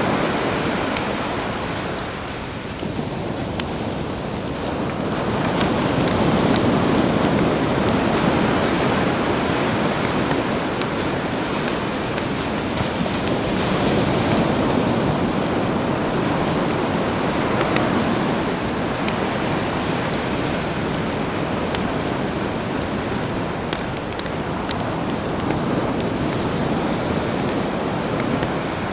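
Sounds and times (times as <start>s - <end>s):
campfire crackling and popping: 0.0s - 28.9s
sea surf: 0.0s - 28.9s.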